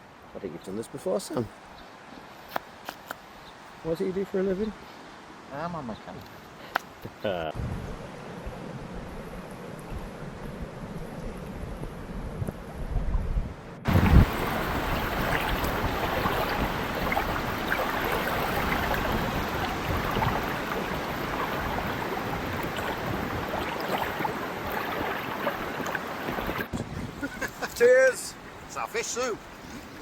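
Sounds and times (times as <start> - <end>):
wind: 0.0 - 30.0
wind buffeting microphone: 7.6 - 27.7
water lapping on shore: 13.9 - 30.0.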